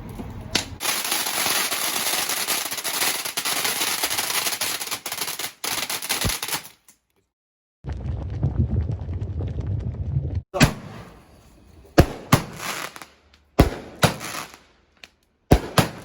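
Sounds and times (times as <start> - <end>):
fireworks crackling: 0.6 - 6.8, 10.8 - 16.0
low rumble: 7.8 - 12.0.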